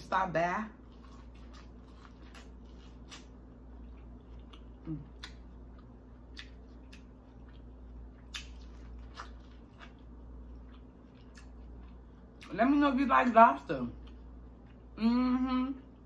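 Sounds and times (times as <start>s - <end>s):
steady low hum: 0.0s - 16.0s
chewing corn on the cob: 0.8s - 12.6s.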